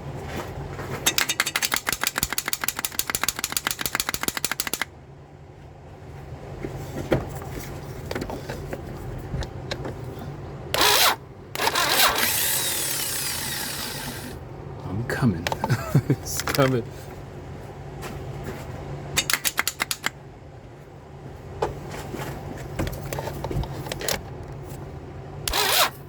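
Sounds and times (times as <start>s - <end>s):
starter cranking engine: 1.1s - 4.9s, 10.7s - 14.4s, 25.4s - 26.0s.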